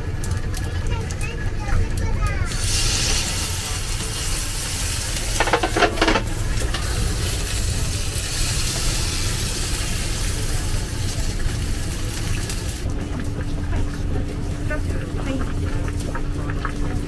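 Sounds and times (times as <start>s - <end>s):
dumplings sizzling on a griddle: 0.3s - 12.9s.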